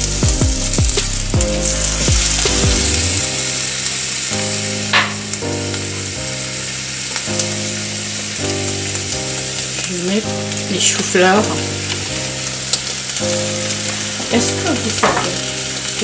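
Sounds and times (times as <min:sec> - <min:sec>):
background music: 0:00.0 - 0:16.0
vegetables sizzling in a pan: 0:00.0 - 0:16.0
spatula tapping a pan: 0:15.0 - 0:15.4.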